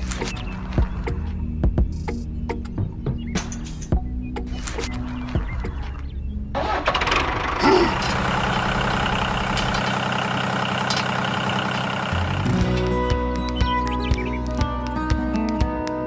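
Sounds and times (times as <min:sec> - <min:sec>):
engine starting and running: 0:06.5 - 0:13.1.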